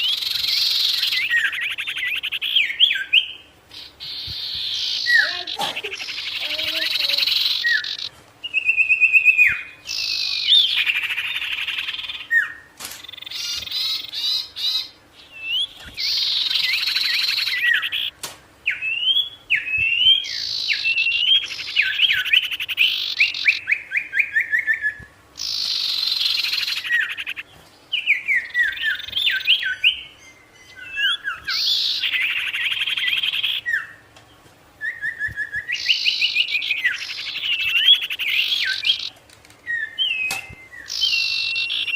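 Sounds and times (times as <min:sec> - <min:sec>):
bird buzzy rattling trills: 0:03.7 - 0:15.0, 0:15.6 - 0:18.7, 0:25.4 - 0:27.6.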